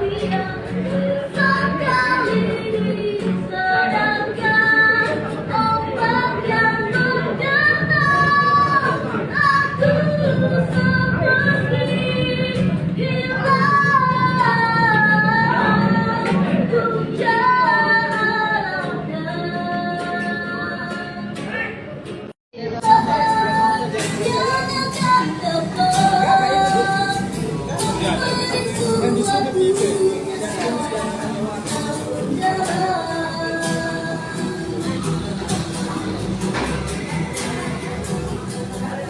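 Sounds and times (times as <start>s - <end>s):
woman singing a slow ballad: 22.8s - 34.8s
instrumental accompaniment: 22.8s - 39.0s.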